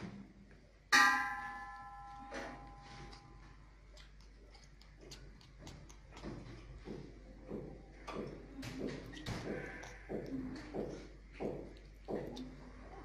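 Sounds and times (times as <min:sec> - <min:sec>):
metallic clang ringing: 0:00.9 - 0:03.2.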